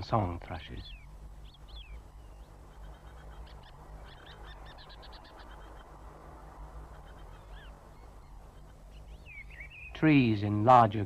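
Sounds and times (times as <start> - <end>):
low hum and hiss: 0.0 - 11.0
songbird singing: 0.0 - 11.0.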